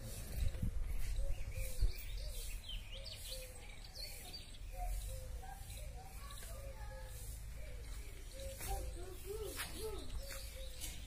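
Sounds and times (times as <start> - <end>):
birds calling and chirping: 0.0 - 11.0.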